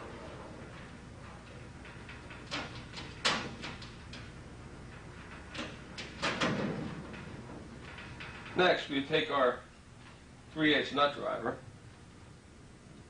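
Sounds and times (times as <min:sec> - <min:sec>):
metal clicks and knocks on locker: 0:01.9 - 0:04.3.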